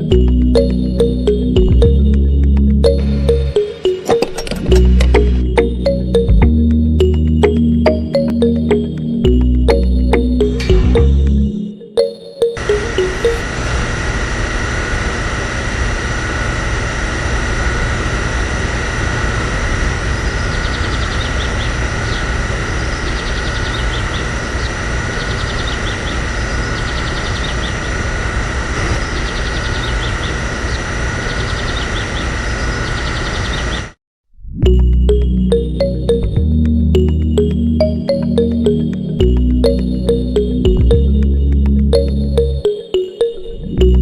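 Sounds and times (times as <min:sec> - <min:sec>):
machine whining: 0:00.0 - 0:34.0.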